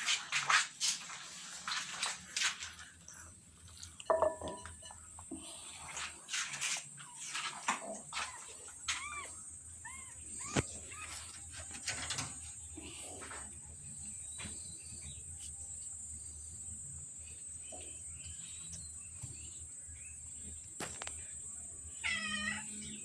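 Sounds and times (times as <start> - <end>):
kittens mewing: 21.9 - 23.0.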